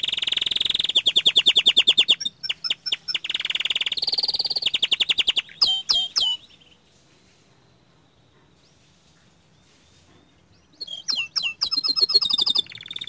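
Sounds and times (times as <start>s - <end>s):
canary singing trills: 0.0s - 6.9s, 9.5s - 13.0s.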